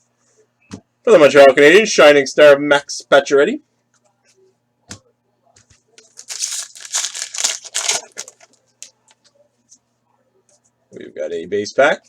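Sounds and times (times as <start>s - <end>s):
wrapper tearing and crinkling: 6.0s - 8.9s.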